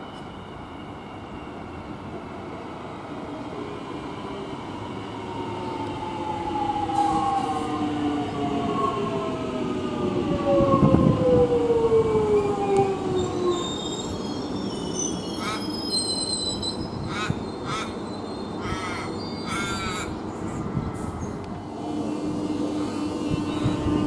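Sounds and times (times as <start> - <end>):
train rumble: 0.0 - 24.0
electric train motor whine: 21.6 - 24.0.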